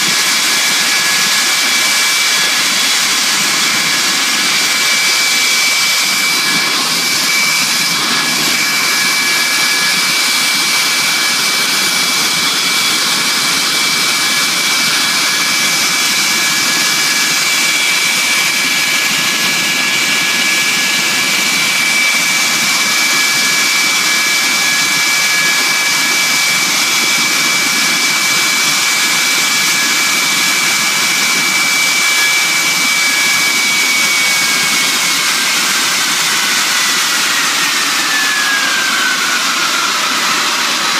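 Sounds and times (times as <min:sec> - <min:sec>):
jet engine running: 0:00.0 - 0:40.9.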